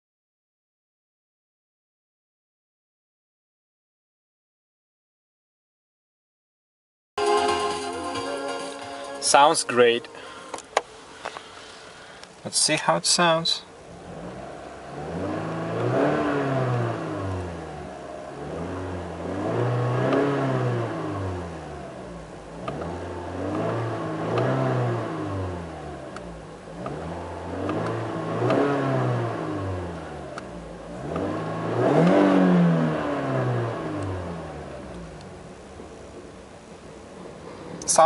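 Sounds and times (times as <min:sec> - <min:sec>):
car engine revving: 0:12.8 - 0:38.0.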